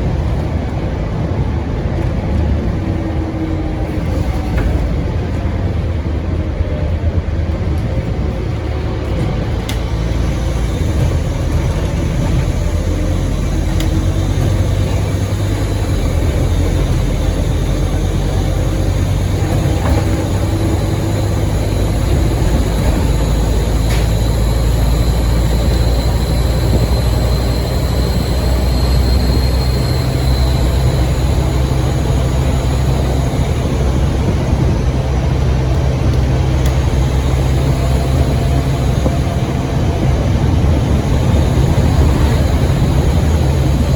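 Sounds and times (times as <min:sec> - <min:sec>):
bus diesel engine running: 0:00.0 - 0:43.9
turbo whistle: 0:13.3 - 0:33.9.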